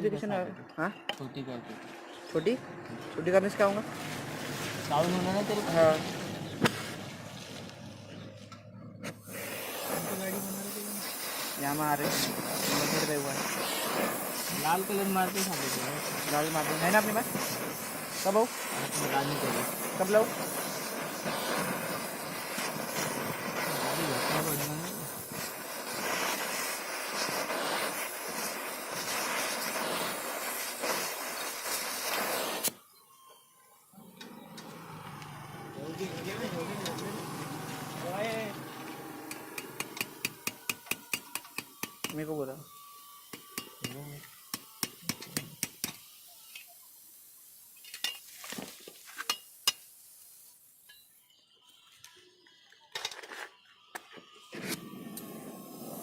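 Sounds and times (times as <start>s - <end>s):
loud hissing rush: 2.4s - 8.1s, 9.1s - 32.8s, 34.6s - 42.6s, 54.8s - 56.0s.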